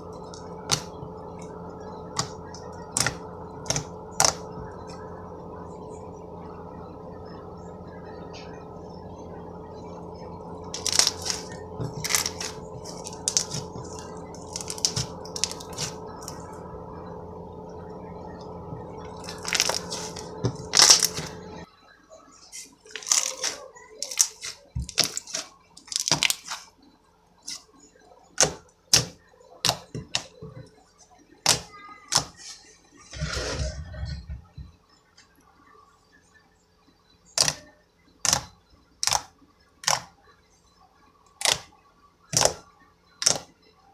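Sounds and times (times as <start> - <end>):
steady hum: 0.0 - 43.9
slime squishing wet clicks and pops: 43.2 - 43.5.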